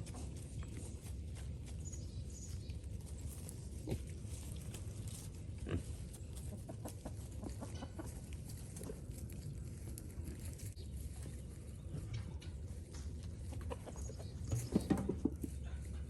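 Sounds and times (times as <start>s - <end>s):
pigs grunting: 3.5s - 7.9s.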